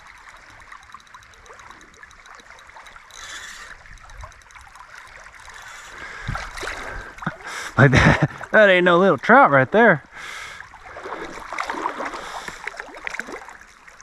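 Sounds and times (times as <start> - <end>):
fine ticking: 0.0 - 6.4
river water rushing: 10.8 - 13.6.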